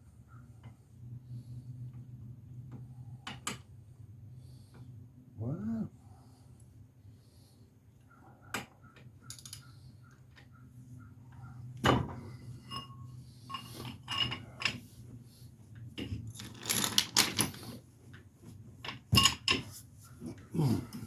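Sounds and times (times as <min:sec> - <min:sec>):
metal tools and car parts clanking: 0:12.6 - 0:14.8, 0:19.2 - 0:19.6.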